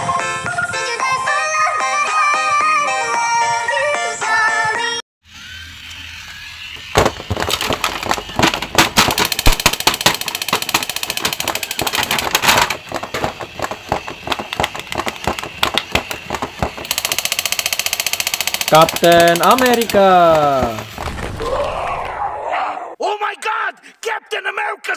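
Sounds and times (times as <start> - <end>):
toy mechanism clicking and rattling: 7.5 - 21.0.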